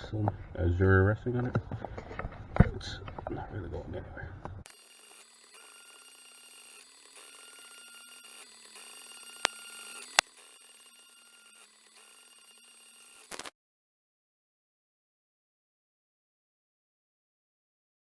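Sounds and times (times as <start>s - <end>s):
stepper motors whining: 4.6s - 13.5s
sharp clicks: 4.7s - 13.5s.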